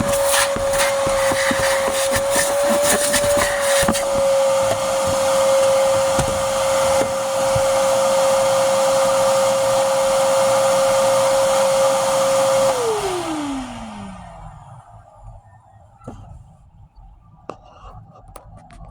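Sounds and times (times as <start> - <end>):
vacuum cleaner running: 0.0 - 15.0
vacuum motor spinning down: 0.0 - 15.0.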